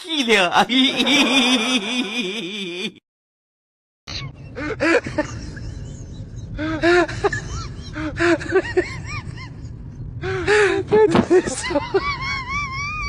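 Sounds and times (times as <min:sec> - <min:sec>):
low rumbling background noise: 0:04.1 - 0:13.0.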